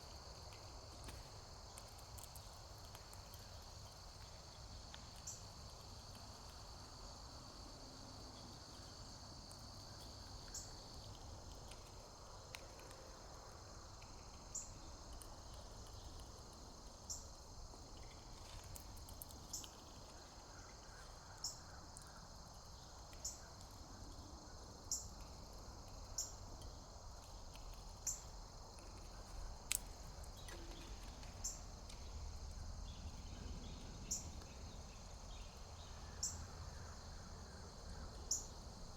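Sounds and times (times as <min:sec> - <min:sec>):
insect chorus trilling: 0:15.8 - 0:38.9.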